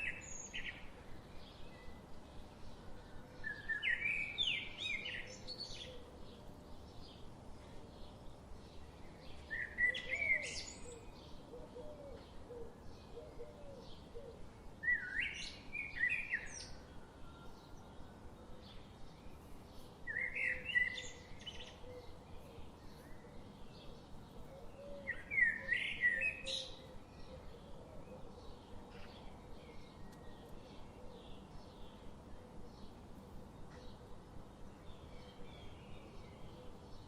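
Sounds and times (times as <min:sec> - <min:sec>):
bird singing: 0:00.0 - 0:37.0
faint bird chirps: 0:08.8 - 0:34.2.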